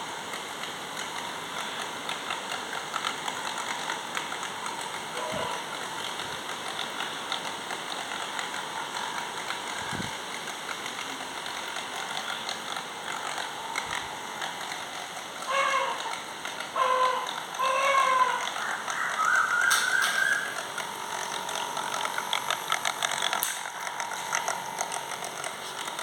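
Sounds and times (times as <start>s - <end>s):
toy boat propeller churning water: 0.0s - 26.0s.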